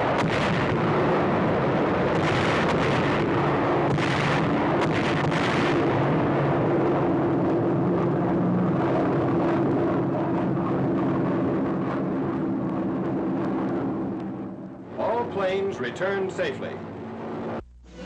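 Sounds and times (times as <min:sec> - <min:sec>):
bomb explosions: 0:00.0 - 0:15.9
bomber piston engines droning: 0:00.0 - 0:18.0.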